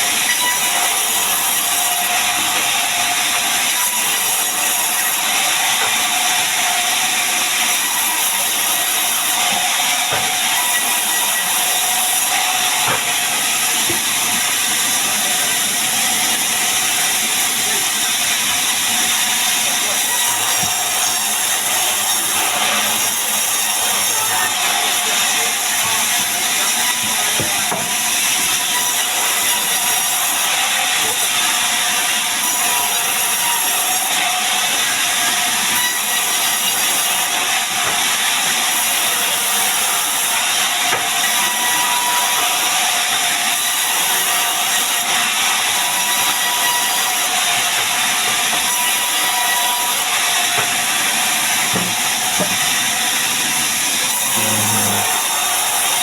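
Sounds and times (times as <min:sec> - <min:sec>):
chainsaw cutting wood: 0:40.5 - 0:56.0.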